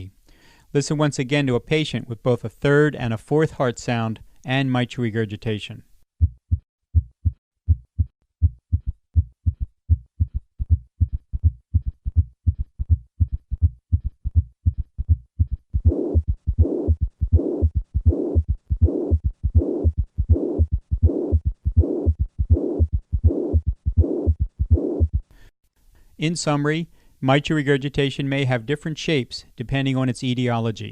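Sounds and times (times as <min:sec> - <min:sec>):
heart murmur rushing: 0:06.2 - 0:25.3
heartbeat: 0:06.2 - 0:25.3.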